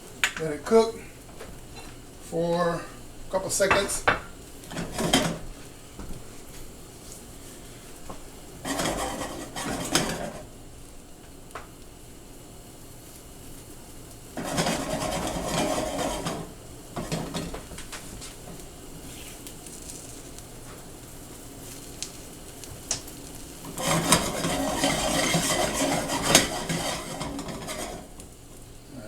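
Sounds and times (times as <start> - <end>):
low sizzle: 0.0 - 29.0
spatula scraping in a frying pan: 4.6 - 5.5, 8.6 - 10.5, 14.4 - 17.7, 19.0 - 20.3, 23.3 - 28.3.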